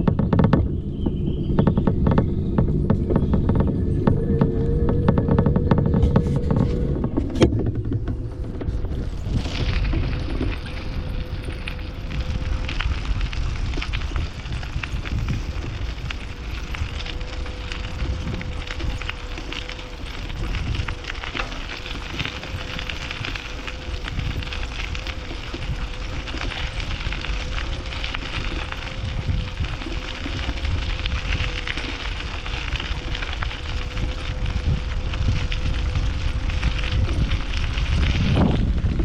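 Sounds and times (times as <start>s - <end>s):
bicycle tyre noise: 0.0s - 39.0s
small crackles: 0.0s - 39.0s
steady hum: 0.0s - 39.0s
wind buffeting microphone: 0.0s - 39.0s.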